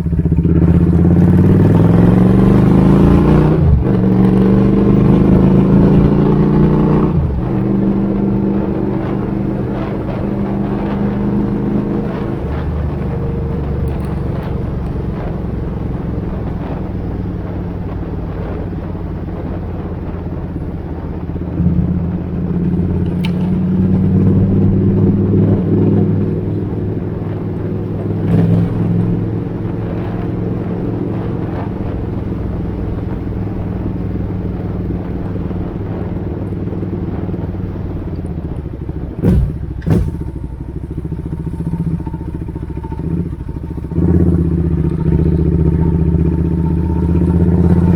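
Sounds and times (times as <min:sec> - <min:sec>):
motorcycle engine idling and revving: 0:00.0 - 0:47.9
sharp short cracks: 0:39.2 - 0:41.4.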